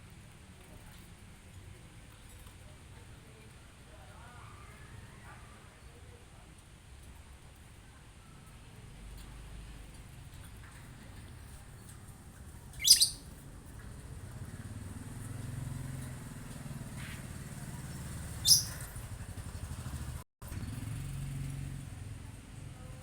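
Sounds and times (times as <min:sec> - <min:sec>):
vehicle engine rumble: 0:08.4 - 0:23.0
high bird chirps: 0:12.7 - 0:13.3, 0:17.9 - 0:18.9.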